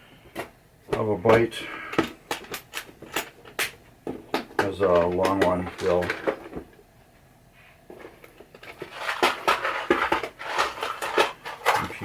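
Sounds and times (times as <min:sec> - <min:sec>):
screws rattling and clinking: 0:02.3 - 0:03.6.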